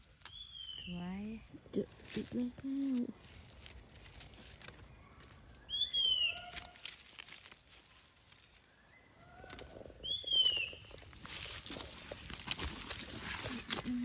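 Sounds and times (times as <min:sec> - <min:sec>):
hands rustling wet leaves: 0:00.0 - 0:14.0
bird whistling call: 0:05.7 - 0:06.5, 0:10.0 - 0:10.9.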